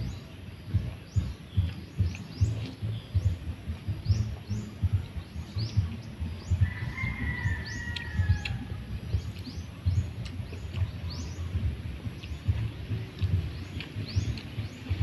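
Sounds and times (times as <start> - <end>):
birds chirping: 0.0 - 15.0
low rumble of soft thuds: 0.0 - 15.0.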